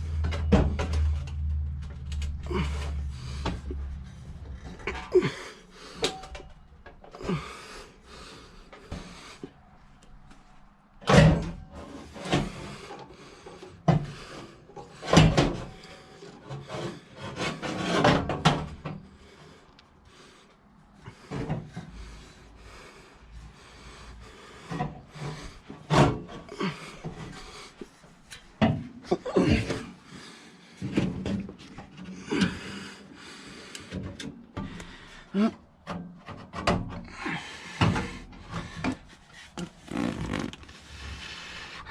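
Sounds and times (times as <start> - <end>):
exhaust scraping and knocking: 0.0 - 5.2, 24.6 - 27.9.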